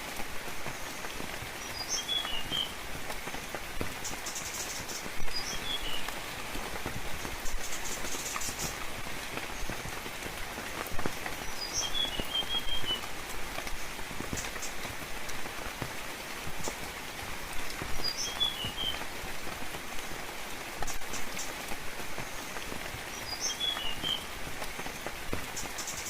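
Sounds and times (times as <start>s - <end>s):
steady rainfall: 0.0s - 26.0s
bird chirping: 11.5s - 13.0s.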